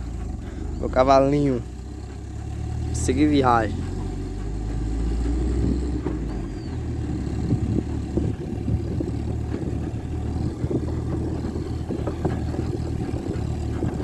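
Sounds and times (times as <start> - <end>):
car engine running: 0.0 - 14.0
load knocking and rattling: 2.9 - 14.0.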